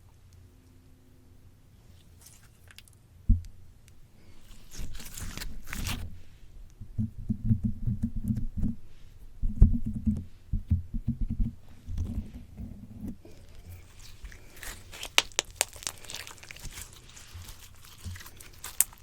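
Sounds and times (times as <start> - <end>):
slime squishing: 4.2 - 6.4, 13.0 - 19.0
sticky crackle: 4.3 - 6.1, 13.2 - 19.0.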